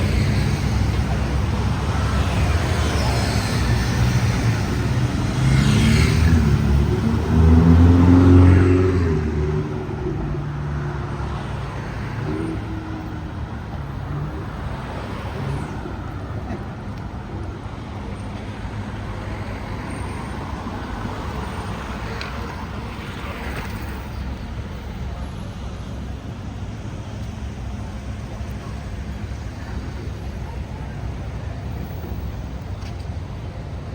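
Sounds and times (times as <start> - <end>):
vehicle engine passing: 0.0 - 16.2
hum of passing cars: 0.0 - 33.9.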